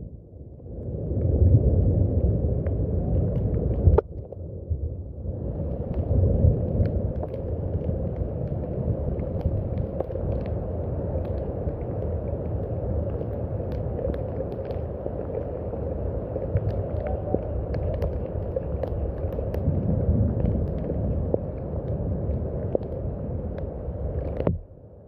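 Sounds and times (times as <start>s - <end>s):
deep low rumble: 0.0s - 25.0s
steady rain: 0.0s - 25.0s
raindrop ticks: 0.7s - 4.5s, 5.4s - 24.8s.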